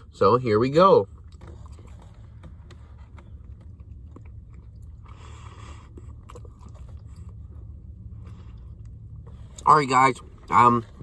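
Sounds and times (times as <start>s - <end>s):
low steady hum: 0.0s - 11.0s
person chewing food: 1.1s - 9.6s.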